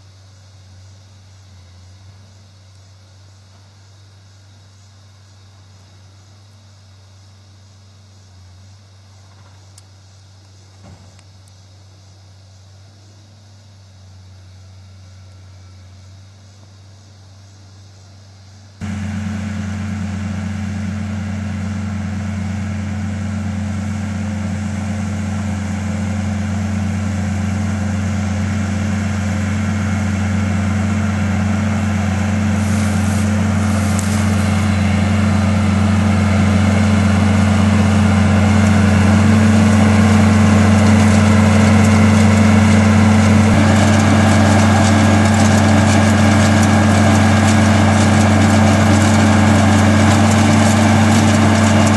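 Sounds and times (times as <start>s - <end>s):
tractor engine running: 13.9s - 51.9s.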